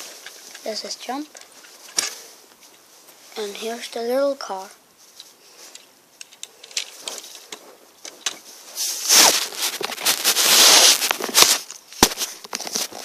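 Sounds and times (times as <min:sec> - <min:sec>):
plastic toy bricks clicking: 0:05.7 - 0:07.3.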